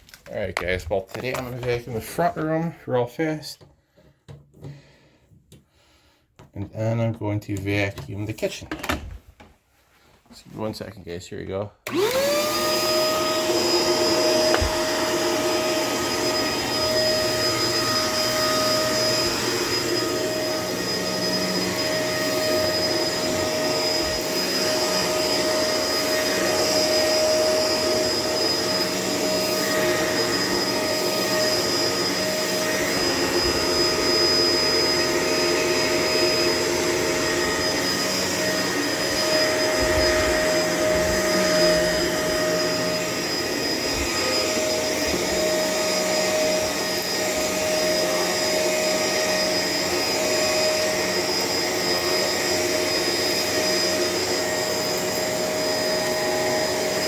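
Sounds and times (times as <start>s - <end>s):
vacuum cleaner running: 11.8s - 57.0s.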